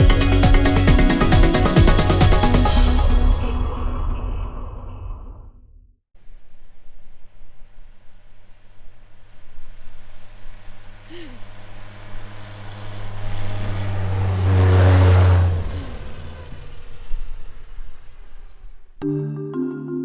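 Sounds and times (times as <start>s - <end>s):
truck engine passing: 10.0s - 19.0s.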